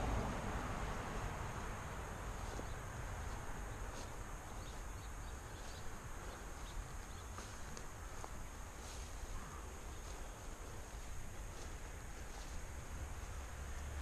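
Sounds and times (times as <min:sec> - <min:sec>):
steady low rumble: 0:00.0 - 0:14.0
small bird chirping: 0:02.4 - 0:07.8.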